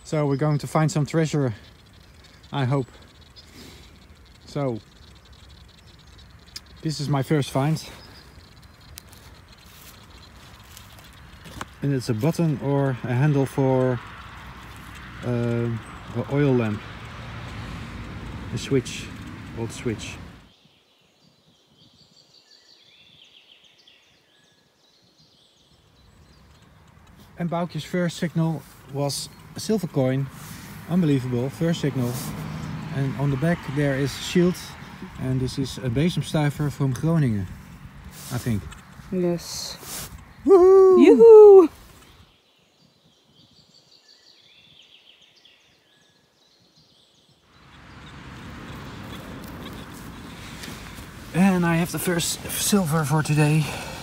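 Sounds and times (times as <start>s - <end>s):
faint birds singing: 0.0s - 54.0s
songbirds chirping: 0.0s - 54.0s
wind rumble on microphone: 21.3s - 22.2s.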